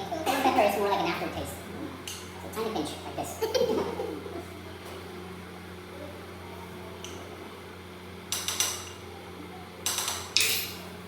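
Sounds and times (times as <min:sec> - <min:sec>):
low electrical hum: 0:00.0 - 0:11.0
utensil clinking against dish: 0:08.3 - 0:09.0, 0:09.8 - 0:10.8.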